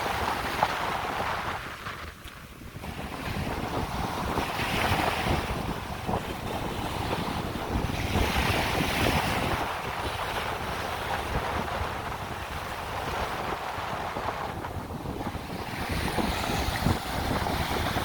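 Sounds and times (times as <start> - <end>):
surf on a beach: 0.0 - 18.0
wind buffeting microphone: 0.0 - 18.0.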